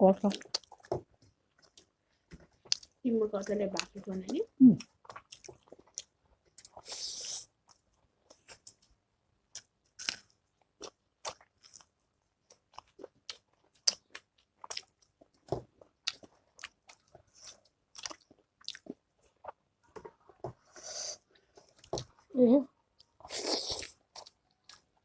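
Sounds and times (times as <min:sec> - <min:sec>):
chewing and crunching food: 0:00.1 - 0:25.0.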